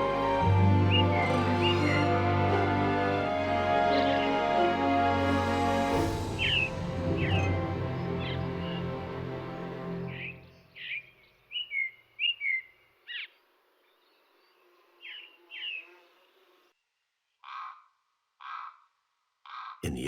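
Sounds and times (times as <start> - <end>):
background music: 0.0 - 10.6
wild birds chirping: 0.8 - 5.1, 6.3 - 16.7, 17.3 - 19.8.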